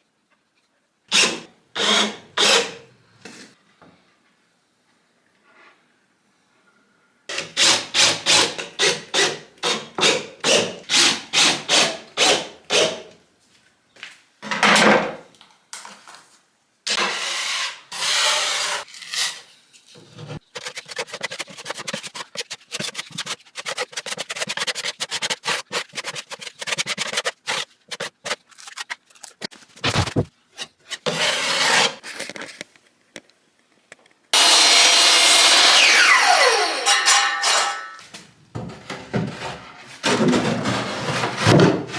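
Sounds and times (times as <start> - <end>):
hand sawing wood: 7.3 - 13.0, 20.4 - 28.8, 29.8 - 30.3
scraping and knocks: 25.9 - 30.8, 38.6 - 41.9.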